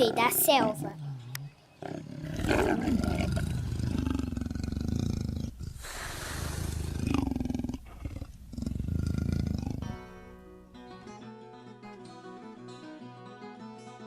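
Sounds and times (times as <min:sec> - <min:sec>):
lion roaring: 0:00.0 - 0:10.0
breathy exhale: 0:05.7 - 0:07.2.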